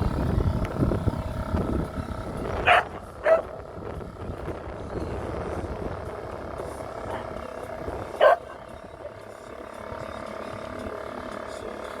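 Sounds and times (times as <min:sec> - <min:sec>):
low steady rumble: 0:00.0 - 0:12.0
dog barking: 0:02.7 - 0:03.5, 0:08.2 - 0:08.6.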